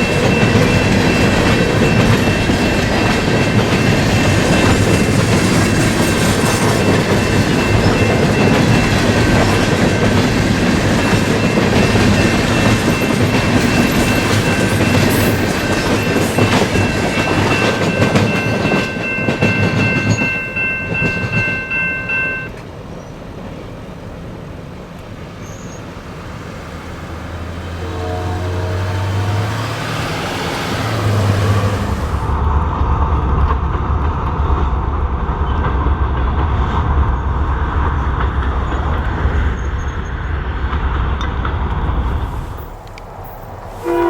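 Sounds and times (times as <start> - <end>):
diesel engine droning: 25.4 - 32.6
locomotive horn chord: 27.2 - 32.3, 43.8 - 44.0.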